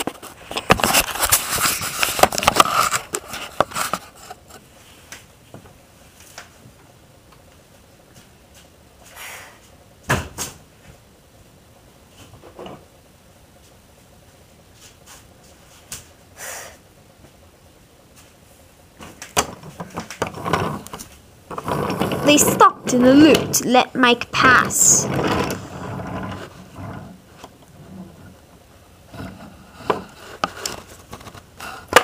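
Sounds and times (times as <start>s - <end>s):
knocks and handling noises: 19.0s - 23.8s, 24.4s - 32.0s.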